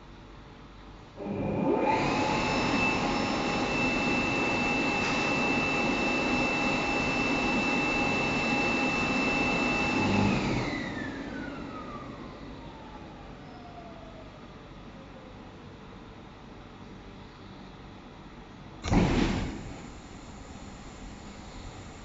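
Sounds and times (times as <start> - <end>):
blower motor whining: 1.2 - 14.2, 18.8 - 22.0
rush of air: 18.8 - 22.0.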